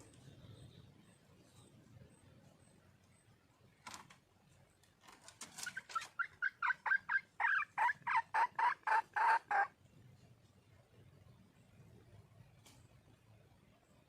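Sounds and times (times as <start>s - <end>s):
junglefowl hen calling: 5.4s - 9.8s.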